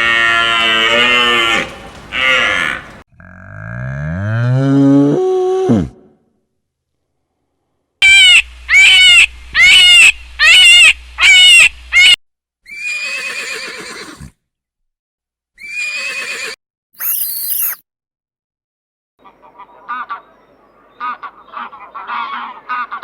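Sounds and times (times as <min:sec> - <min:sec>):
animal cries rising and falling: 0:00.0 - 0:03.0.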